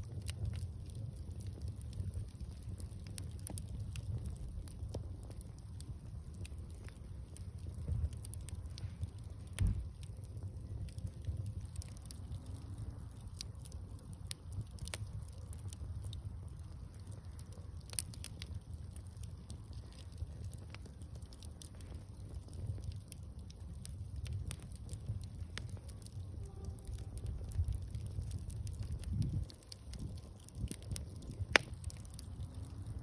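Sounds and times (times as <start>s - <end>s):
bonfire crackling and popping: 0.0s - 33.0s
low thump: 9.5s - 10.0s.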